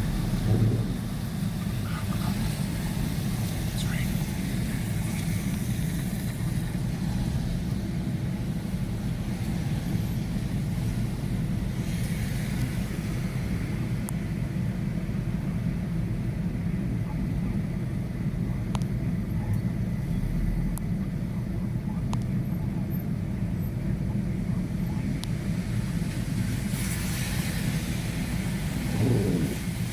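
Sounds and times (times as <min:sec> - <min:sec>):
car road and engine rumble: 0:00.0 - 0:29.9.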